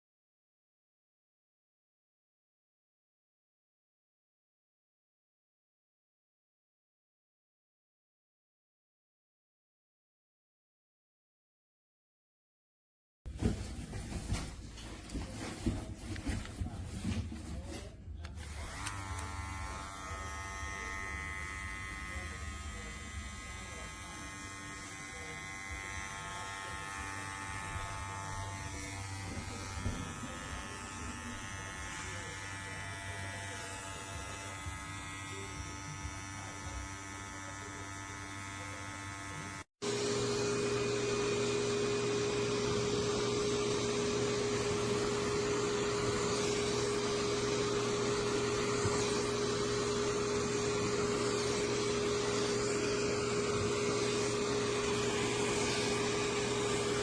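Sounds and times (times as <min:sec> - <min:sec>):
electric dog clipper buzzing: 0:18.3 - 0:57.0
clipper vacuum whirring: 0:39.8 - 0:57.0.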